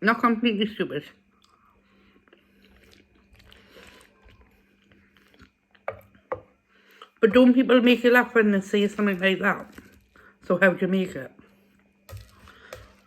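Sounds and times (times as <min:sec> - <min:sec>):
person chewing food: 0:01.3 - 0:07.1, 0:11.5 - 0:13.0.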